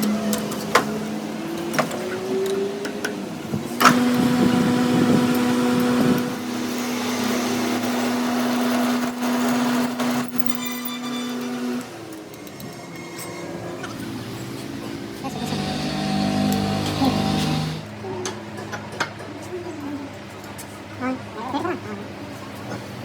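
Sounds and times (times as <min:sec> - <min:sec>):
machine motor humming: 0:03.4 - 0:10.5, 0:14.1 - 0:17.9
motor starting clunk: 0:03.8 - 0:08.2, 0:15.3 - 0:17.9.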